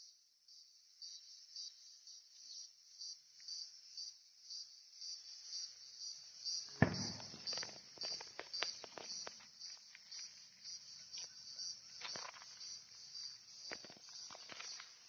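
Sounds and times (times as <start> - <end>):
insect chirping: 0.0 - 15.0
sharp knock: 6.7 - 7.7.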